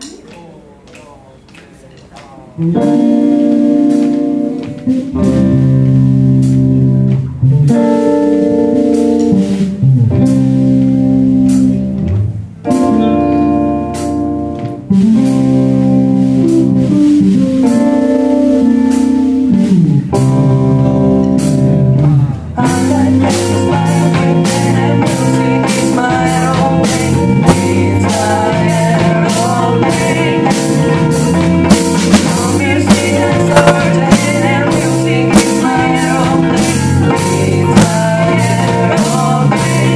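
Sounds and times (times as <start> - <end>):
rock band playing: 2.6 - 39.9
drumming and cymbals: 22.7 - 39.9.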